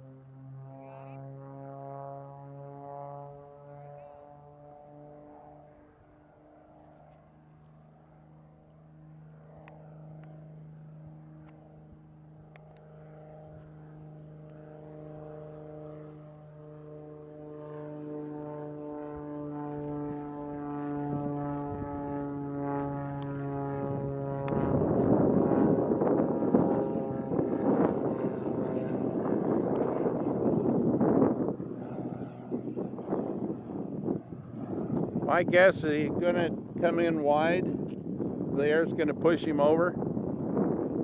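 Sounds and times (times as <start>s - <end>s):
propeller plane engine droning: 0.0s - 41.0s
wind on microphone: 18.5s - 41.0s.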